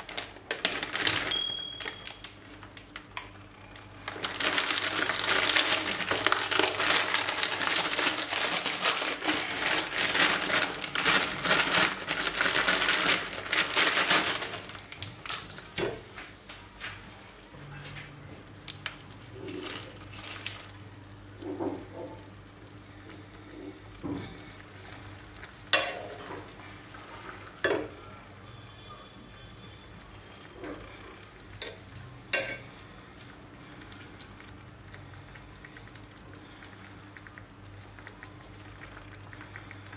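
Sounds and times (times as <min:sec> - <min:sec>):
plastic packet crinkling: 0:00.0 - 0:03.1, 0:03.8 - 0:15.8, 0:19.6 - 0:20.8.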